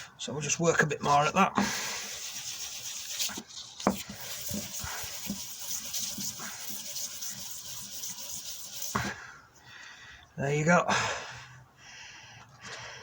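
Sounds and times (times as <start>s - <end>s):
metal rubbing on sandpaper: 1.6s - 9.2s.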